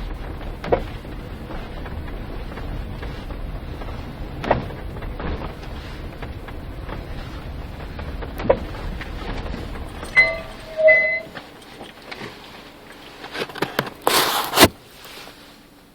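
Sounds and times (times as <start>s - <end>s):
car road rumble: 0.0s - 15.0s
short electronic tones: 10.2s - 11.4s.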